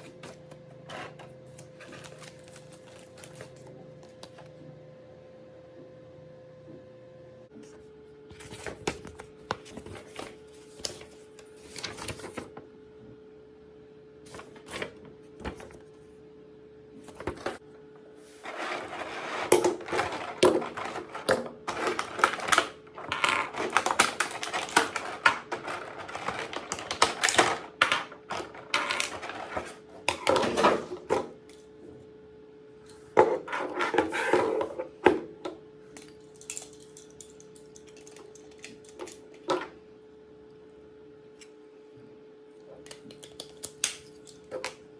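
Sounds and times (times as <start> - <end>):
plastic parts clicking and clattering: 18.5 - 31.3, 35.9 - 39.7.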